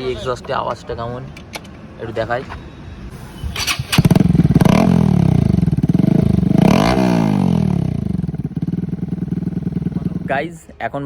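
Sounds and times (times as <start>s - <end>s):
motorcycle engine revving: 3.5s - 10.3s.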